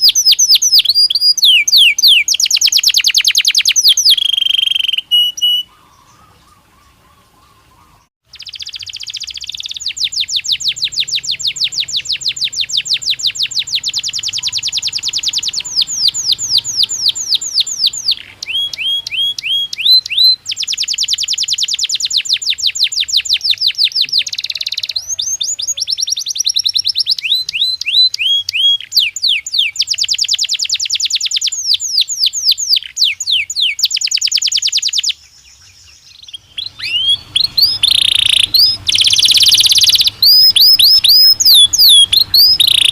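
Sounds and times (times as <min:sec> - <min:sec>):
canary singing trills: 0:00.0 - 0:42.9.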